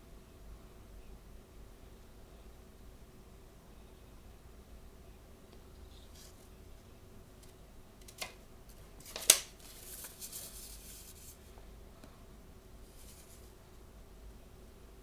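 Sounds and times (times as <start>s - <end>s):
packaging rustling: 7.4s - 11.5s, 12.9s - 13.5s
plastic packaging click: 8.0s - 10.4s
packaging snapping: 8.0s - 11.0s.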